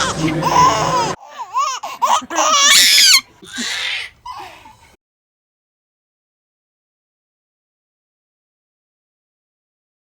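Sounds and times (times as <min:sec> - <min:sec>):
baby laughing and squealing: 0:00.0 - 0:04.7.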